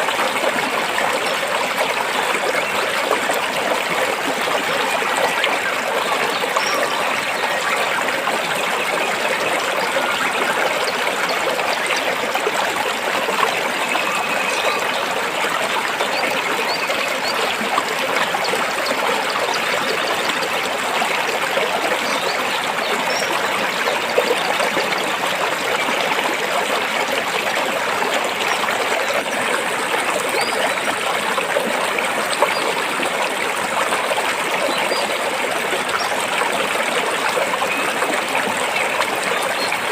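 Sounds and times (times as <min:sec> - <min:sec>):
stream trickling between rocks: 0:00.0 - 0:39.9.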